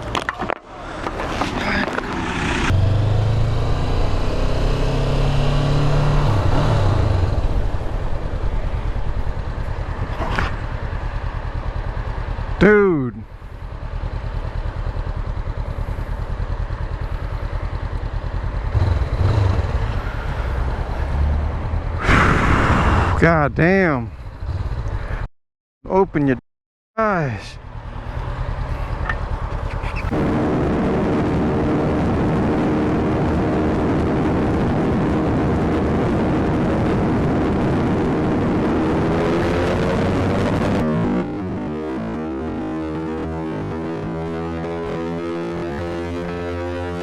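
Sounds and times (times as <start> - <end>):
rushing wind noise: 0.6 - 11.2, 19.3 - 25.2, 29.8 - 41.4
motorcycle engine running: 1.0 - 22.0, 27.6 - 36.4.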